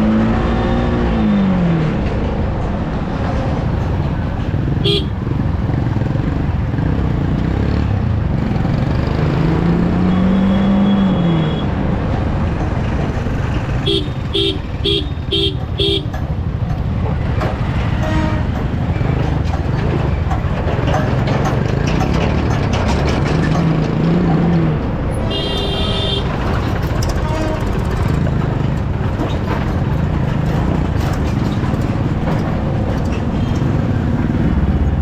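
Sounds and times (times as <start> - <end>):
motorcycle engine: 3.9 - 11.0, 13.0 - 35.0
vehicle horn beeping: 4.8 - 5.2, 10.1 - 11.7, 13.8 - 16.2, 17.9 - 18.5, 25.3 - 26.5, 27.1 - 27.9.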